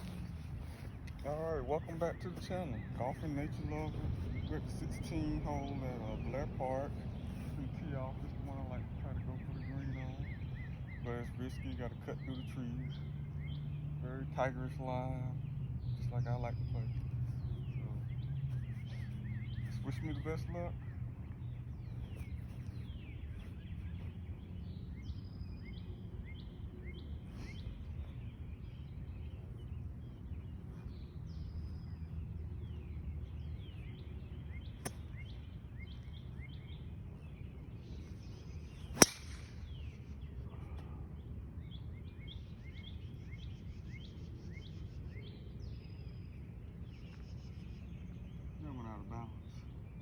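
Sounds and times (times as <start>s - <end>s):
low outdoor rumble: 0.0s - 42.6s
small birds chirping: 0.0s - 50.0s
golf club striking ball: 38.9s - 39.8s.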